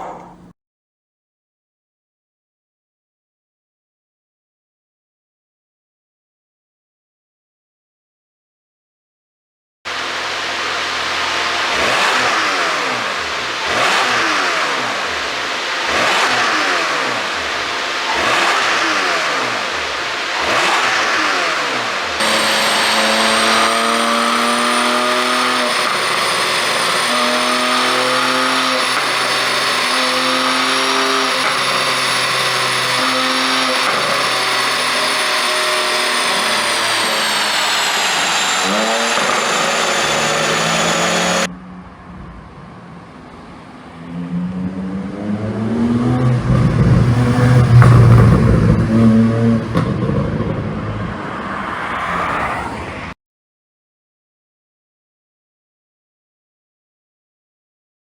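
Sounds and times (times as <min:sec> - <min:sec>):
sports car engine revving: 0:09.9 - 0:41.6, 0:43.1 - 0:52.5
engine running with high whine: 0:09.9 - 0:53.2.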